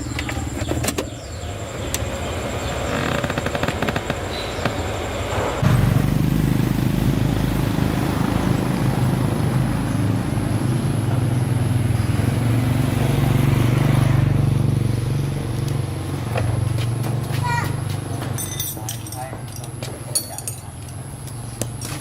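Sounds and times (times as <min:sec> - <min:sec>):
vehicle engine running: 0:00.0 - 0:18.4.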